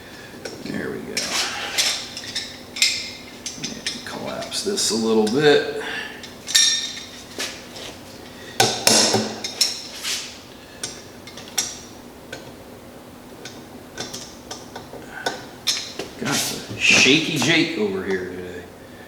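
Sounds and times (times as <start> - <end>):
small metal parts clinking: 0.5 - 4.6, 6.2 - 7.6, 15.2 - 17.6.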